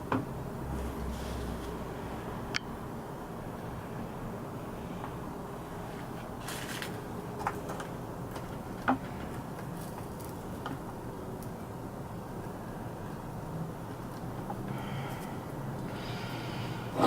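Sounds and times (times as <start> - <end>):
steady low hum: 10.3 - 17.0.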